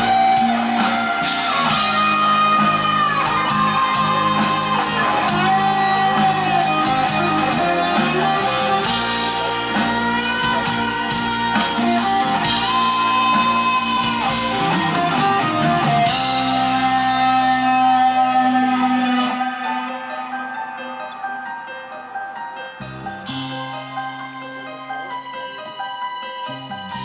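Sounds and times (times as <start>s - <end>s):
drums and cymbals: 0.0s - 17.8s
rock band playing live: 0.0s - 21.5s, 22.8s - 27.0s
electric guitar lines: 0.0s - 22.1s.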